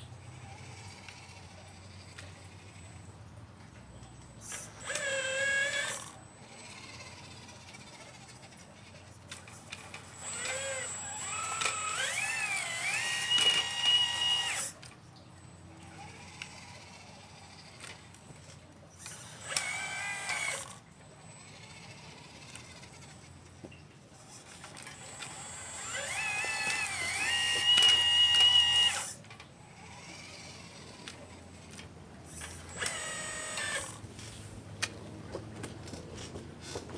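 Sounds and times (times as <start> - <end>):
electric motors whining: 0.0 - 36.9.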